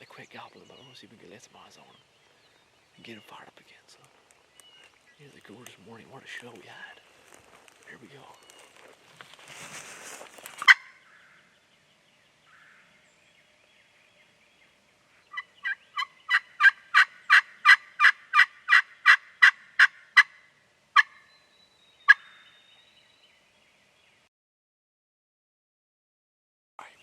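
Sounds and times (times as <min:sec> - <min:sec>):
turkey call yelping: 0:10.6 - 0:11.0, 0:15.3 - 0:20.4, 0:21.0 - 0:21.3, 0:22.1 - 0:22.4.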